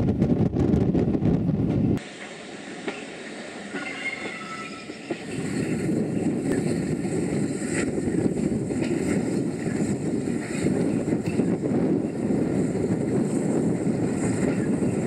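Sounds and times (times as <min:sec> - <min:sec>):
train rumble with wheel clicks: 0:00.0 - 0:15.0
high wheel squeal: 0:03.6 - 0:11.5.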